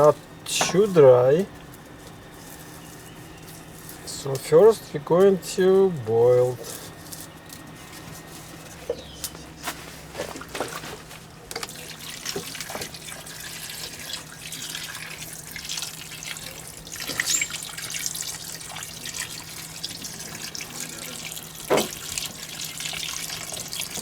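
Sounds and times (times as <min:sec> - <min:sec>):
water splashing into a pot: 0:11.6 - 0:24.0.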